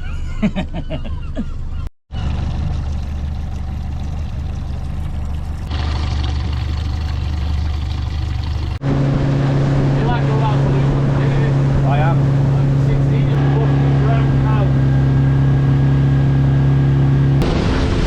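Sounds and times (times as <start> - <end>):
boat engine running: 2.1 - 18.0
wind and water rushing: 8.8 - 15.4.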